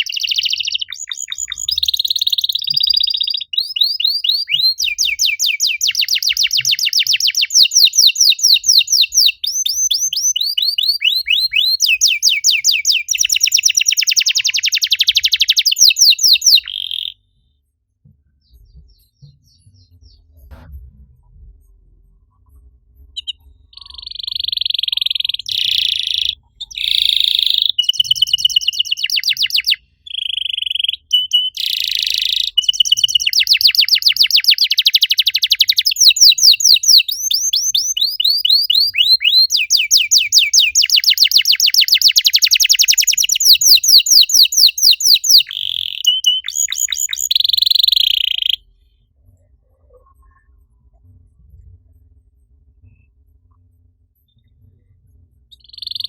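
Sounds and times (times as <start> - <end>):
canary singing trills: 0.0 - 17.3, 23.0 - 48.8, 55.5 - 56.0.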